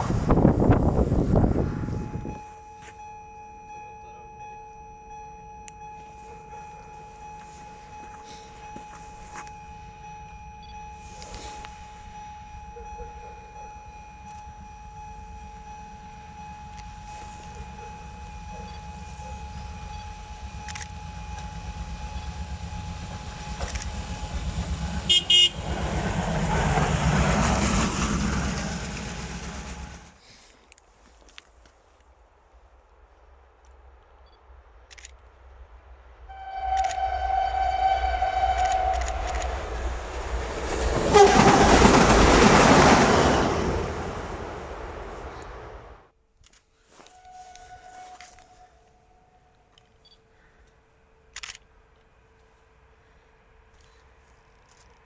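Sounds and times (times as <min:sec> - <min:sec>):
train rumble: 0:00.0 - 0:30.6, 0:32.2 - 0:46.2
short high train horn blasts: 0:25.0 - 0:25.8, 0:36.3 - 0:40.1, 0:41.0 - 0:42.4, 0:47.0 - 0:49.7.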